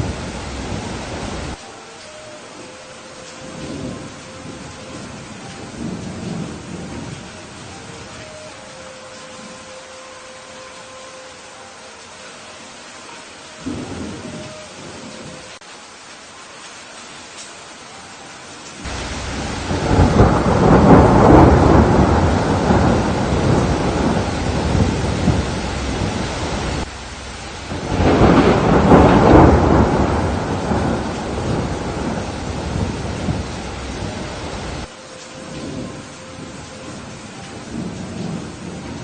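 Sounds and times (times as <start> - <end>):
thunder rolling: 0.0 - 1.6, 3.4 - 8.1, 13.7 - 15.4, 18.8 - 39.0
steady rain: 0.0 - 39.0.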